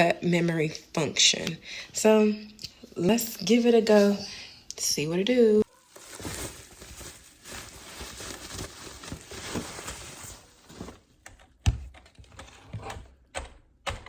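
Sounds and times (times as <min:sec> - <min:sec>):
packaging rustling and tearing: 0:05.6 - 0:11.1.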